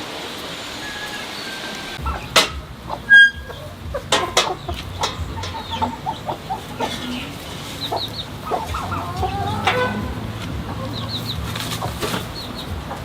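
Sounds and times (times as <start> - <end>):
chickens clucking: 0.3 - 13.0
high squawk: 0.6 - 13.0
sharp knocks: 2.0 - 6.1.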